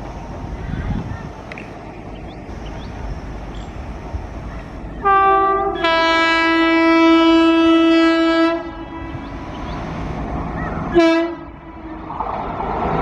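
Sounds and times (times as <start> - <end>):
train horn blast: 5.0 - 12.4.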